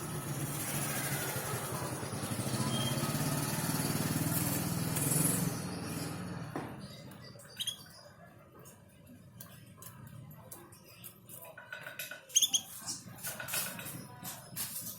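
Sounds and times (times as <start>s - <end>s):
bird chirping: 5.5s - 8.3s, 12.3s - 13.1s.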